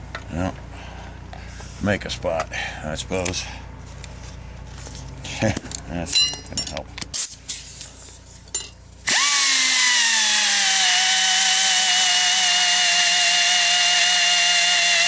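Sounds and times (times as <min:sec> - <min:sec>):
power tool whining: 0:09.1 - 0:15.0.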